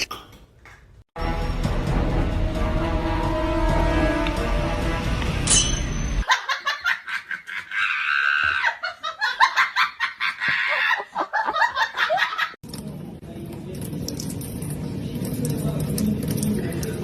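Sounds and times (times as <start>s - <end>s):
high-pitched laughter: 6.2s - 12.6s.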